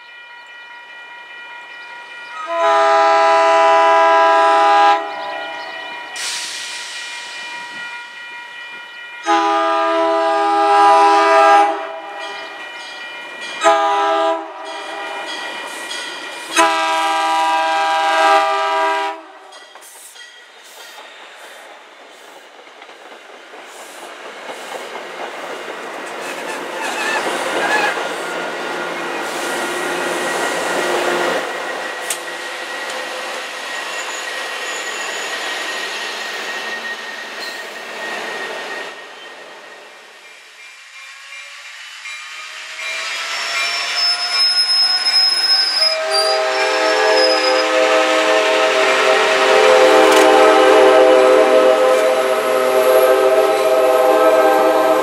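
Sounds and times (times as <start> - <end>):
train wheels rumbling on rail: 1.7 - 55.0
train horn chord: 2.4 - 6.1, 9.2 - 12.5, 13.6 - 15.2, 16.5 - 19.5, 45.8 - 55.0.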